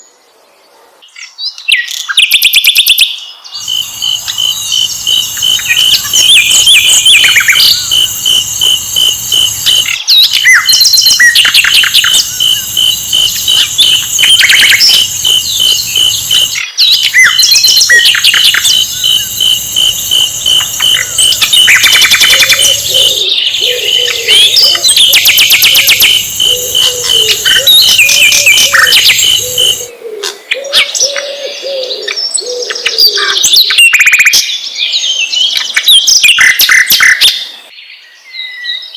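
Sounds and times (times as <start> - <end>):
bird chirps and trills: 3.6 - 29.9
low cooing call: 11.4 - 33.1
pulsing high note: 11.5 - 29.9.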